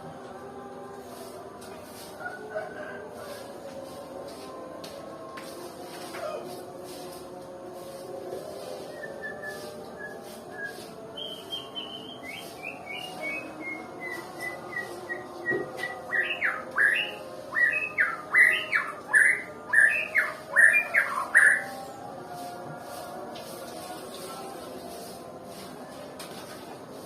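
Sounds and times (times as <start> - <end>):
bird whistling song: 9.0 - 21.7.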